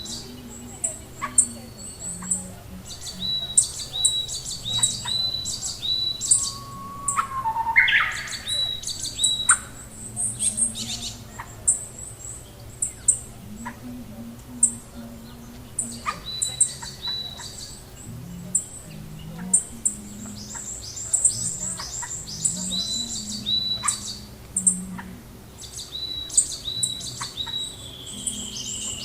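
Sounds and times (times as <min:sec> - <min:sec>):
birds chirping and calling: 0:00.0 - 0:29.0.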